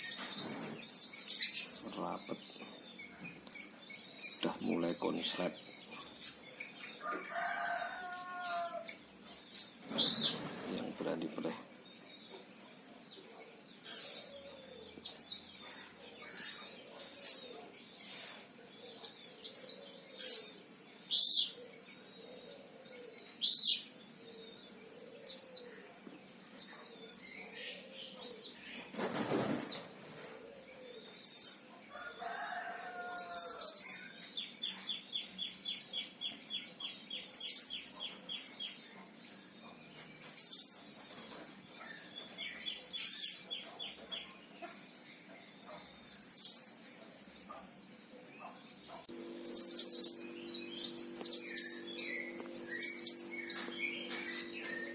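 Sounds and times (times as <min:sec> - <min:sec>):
wing rustle or flutter: 0:09.8 - 0:11.5
bird rattling trill: 0:49.1 - 0:54.9.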